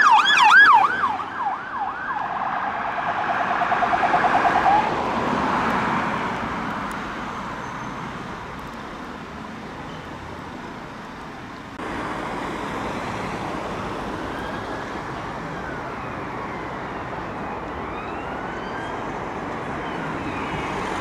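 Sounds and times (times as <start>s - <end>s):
emergency siren wailing: 0.0s - 6.2s, 13.3s - 21.0s
traffic noise: 0.0s - 21.0s.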